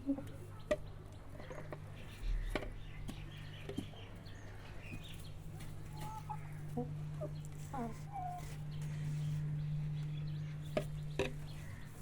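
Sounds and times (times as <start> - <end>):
chickens clucking: 0.0 - 9.5
steady low hum: 0.0 - 12.0.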